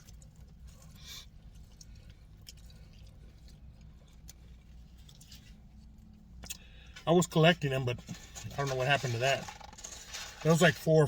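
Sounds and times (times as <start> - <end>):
person chewing: 0.0 - 6.8
low steady hum: 0.0 - 11.0.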